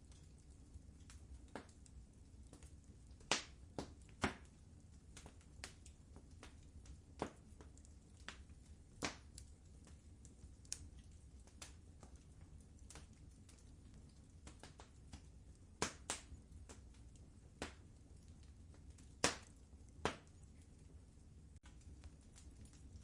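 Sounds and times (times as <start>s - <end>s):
wood fire crackling in fireplace: 0.0s - 23.0s.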